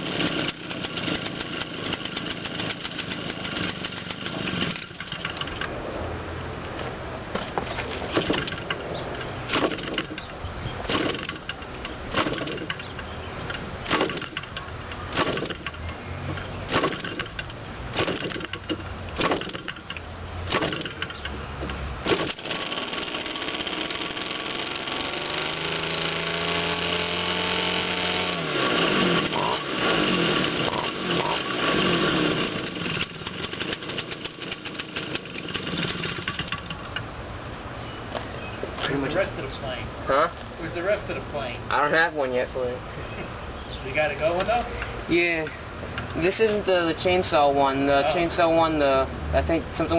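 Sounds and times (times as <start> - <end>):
model airplane engine running: 0.0 - 5.4, 22.6 - 36.6
propeller flips: 0.0 - 37.0.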